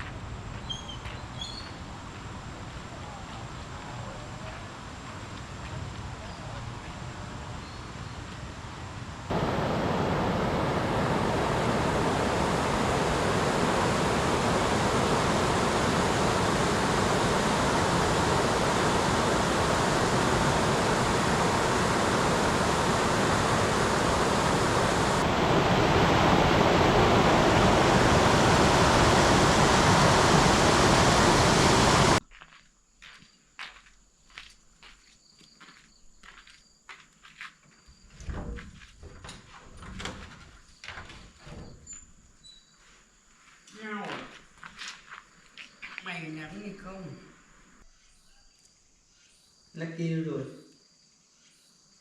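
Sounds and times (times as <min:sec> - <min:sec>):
fast-flowing water rushing: 0:09.3 - 0:32.2.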